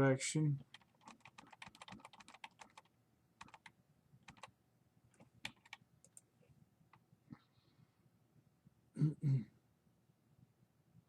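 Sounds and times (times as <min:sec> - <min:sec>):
typing on a computer keyboard: 0:00.6 - 0:04.5, 0:05.2 - 0:06.3.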